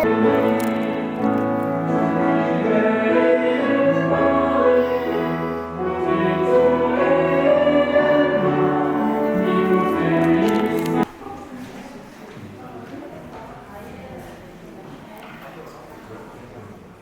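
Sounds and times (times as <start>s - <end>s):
choir singing long notes: 0.0s - 11.0s
instrumental accompaniment: 0.0s - 11.0s.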